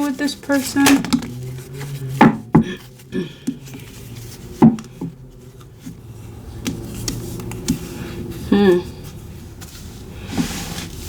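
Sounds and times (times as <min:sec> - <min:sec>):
cards tapping on a table: 0:04.6 - 0:05.1.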